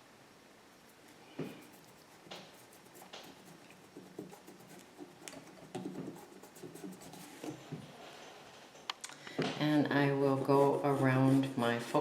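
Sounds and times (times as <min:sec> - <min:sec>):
pencil scratching on paper: 0:01.4 - 0:07.6.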